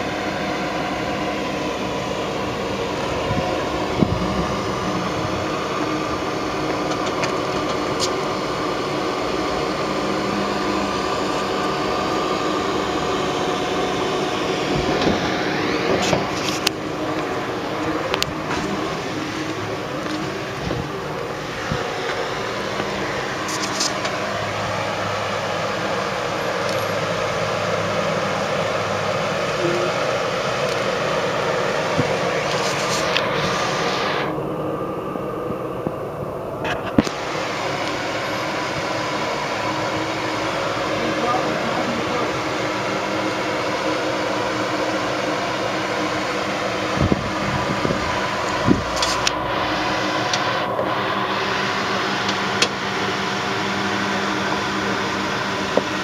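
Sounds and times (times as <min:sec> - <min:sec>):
steady hiss: 0:00.0 - 0:34.6
engine running at low revs: 0:00.0 - 0:56.0.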